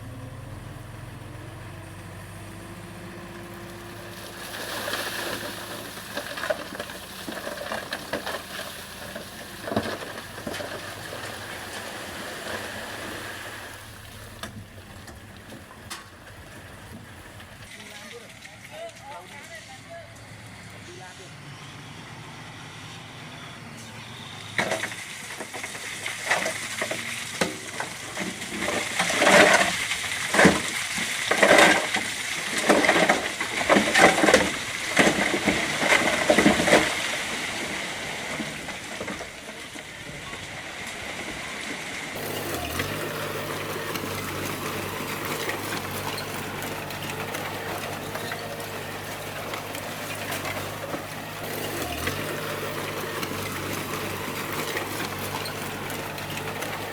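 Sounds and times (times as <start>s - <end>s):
diesel engine droning: 0.0s - 17.7s, 19.6s - 56.9s
rubble clattering: 3.4s - 17.7s, 42.2s - 56.9s.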